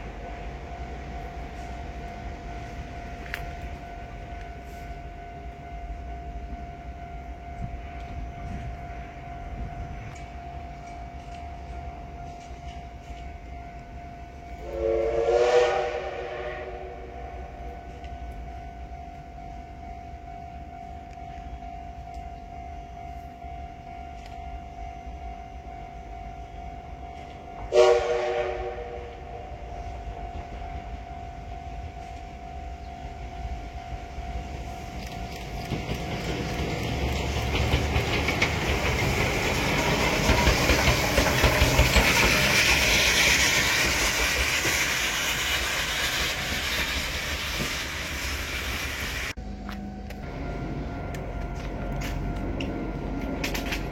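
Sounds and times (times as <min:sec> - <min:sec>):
train horn blast: 0:14.5 - 0:17.6, 0:27.6 - 0:30.2
train wheels clattering on rails: 0:34.5 - 0:49.4, 0:51.1 - 0:53.9.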